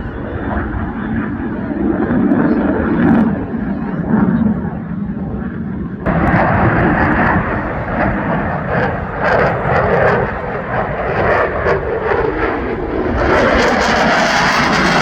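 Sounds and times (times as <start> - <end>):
jet engine roaring: 0.0 - 15.0.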